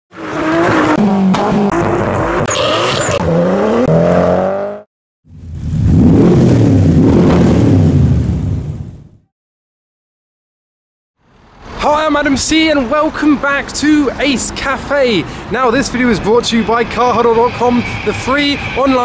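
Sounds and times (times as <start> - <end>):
car engine revving: 0.2 - 8.5.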